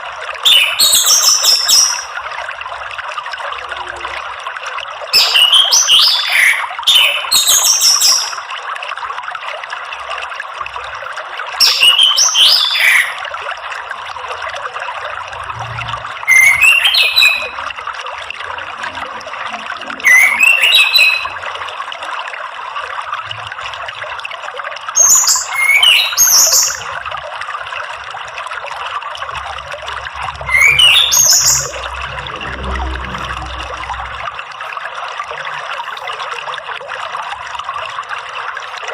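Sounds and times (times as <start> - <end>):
running water: 0.0 - 38.9
thrush singing: 29.4 - 34.6.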